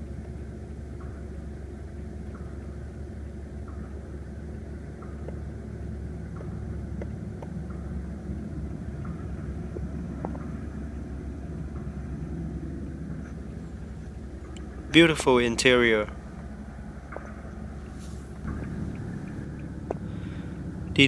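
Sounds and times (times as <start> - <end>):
car engine idling: 17.7 - 21.0.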